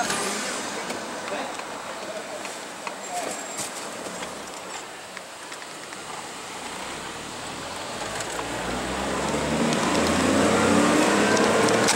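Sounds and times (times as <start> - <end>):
motor vehicle engine approaching: 6.1 - 11.9.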